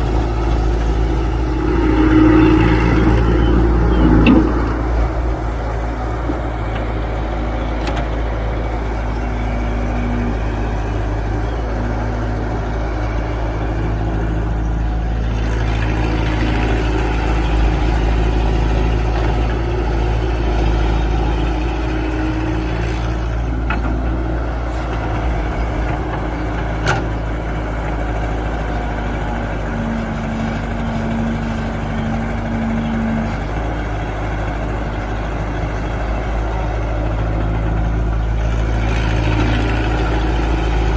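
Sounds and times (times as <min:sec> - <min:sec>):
held whine: 0:00.0 - 0:20.0
excavator diesel engine running: 0:00.0 - 0:40.9.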